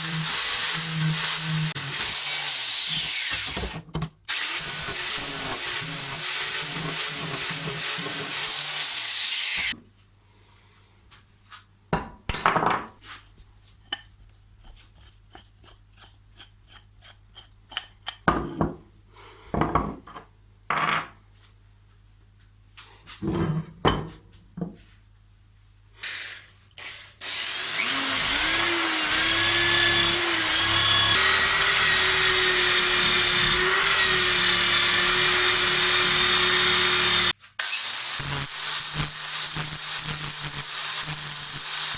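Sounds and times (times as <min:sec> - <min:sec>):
power tool whining: 0:00.0 - 0:09.8, 0:27.2 - 0:41.9.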